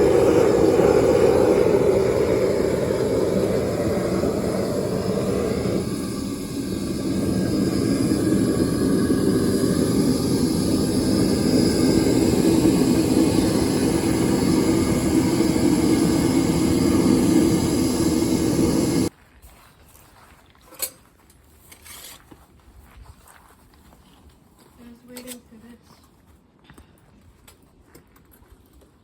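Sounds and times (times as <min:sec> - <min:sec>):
propane burner roaring: 0:00.0 - 0:19.1.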